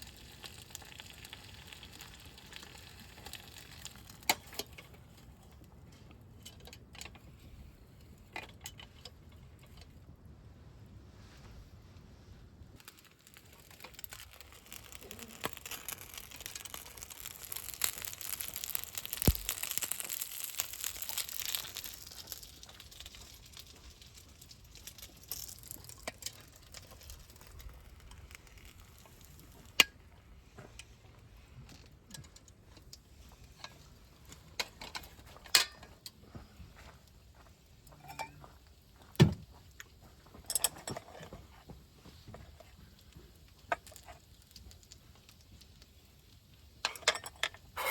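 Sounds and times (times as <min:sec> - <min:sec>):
camp gear clicking and clinking: 0:40.4 - 0:44.3.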